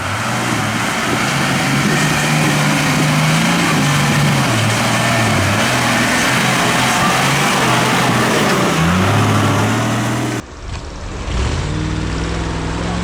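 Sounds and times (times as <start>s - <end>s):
loud rushing noise: 0.0s - 11.8s
engine running steadily: 0.0s - 13.0s
truck engine revving hard: 0.0s - 13.0s.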